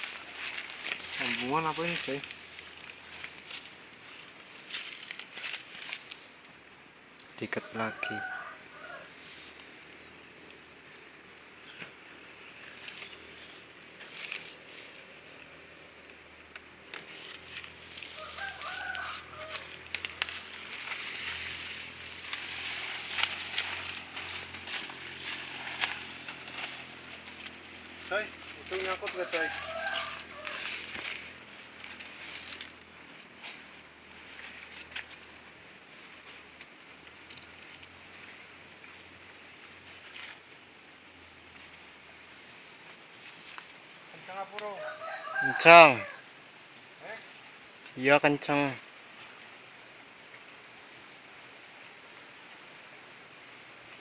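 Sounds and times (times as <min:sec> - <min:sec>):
rustling: 0:00.0 - 0:06.4, 0:11.6 - 0:39.2
faint rooster crowing: 0:07.4 - 0:09.6, 0:17.3 - 0:21.6, 0:28.1 - 0:31.4, 0:44.4 - 0:46.4.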